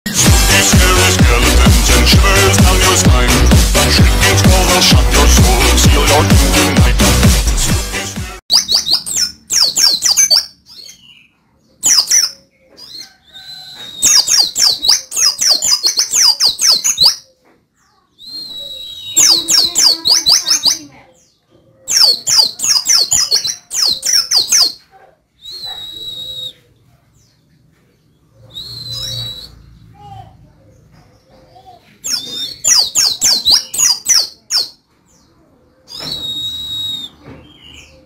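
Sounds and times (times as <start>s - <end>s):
songbird chirping: 7.9s - 38.0s.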